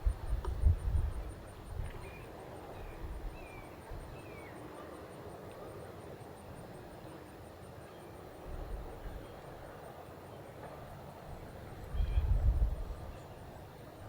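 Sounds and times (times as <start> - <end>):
low wind rumble: 0.0 - 2.0, 11.8 - 13.2.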